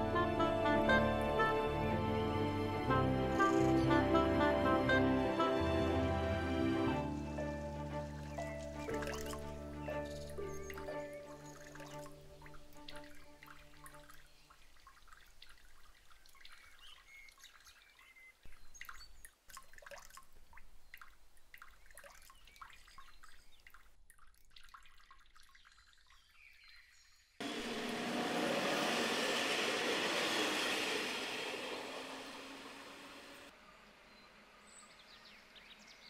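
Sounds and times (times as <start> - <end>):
water splashing and trickling: 7.2 - 28.2
passenger train passing: 27.4 - 33.6.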